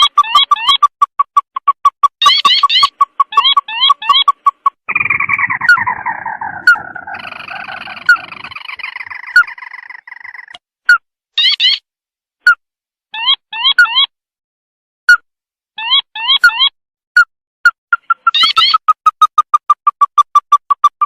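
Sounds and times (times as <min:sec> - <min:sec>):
bird calls: 0:00.0 - 0:10.6, 0:17.9 - 0:21.0.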